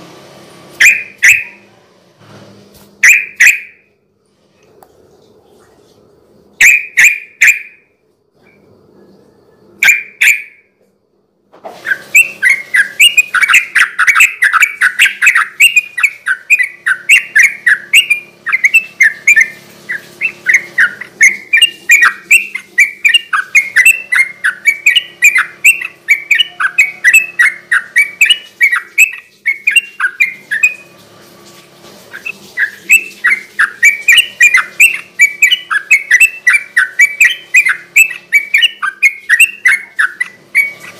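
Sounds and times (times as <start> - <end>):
bird chattering song: 0.8 - 1.6, 3.0 - 3.8, 6.6 - 7.8, 9.8 - 10.6, 11.9 - 30.9, 32.1 - 40.9
single bird calls: 0.8 - 1.6.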